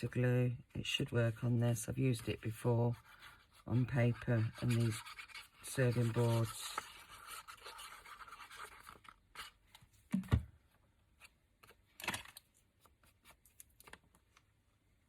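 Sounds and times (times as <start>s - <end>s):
rustling scrape: 2.8s - 9.6s.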